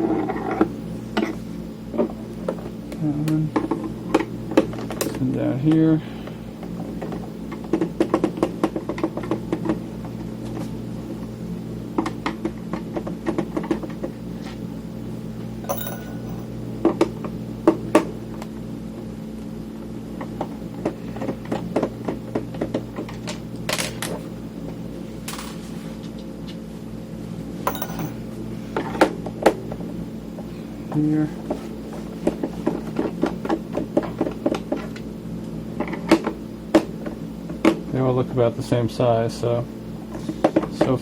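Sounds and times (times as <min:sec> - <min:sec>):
steady low hum: 0:00.0 - 0:41.0
tools set down tapping: 0:15.7 - 0:16.6, 0:27.7 - 0:28.2.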